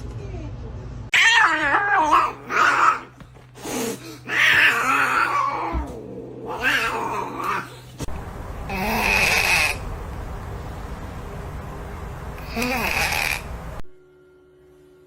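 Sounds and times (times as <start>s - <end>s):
cat yowling: 1.1s - 3.1s.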